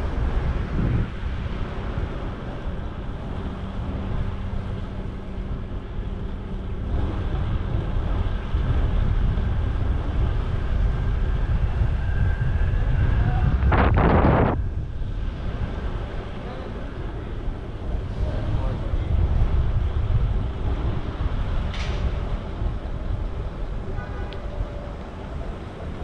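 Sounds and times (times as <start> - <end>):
city street traffic: 0.0 - 26.0
wind rumbling on microphone: 0.0 - 26.0.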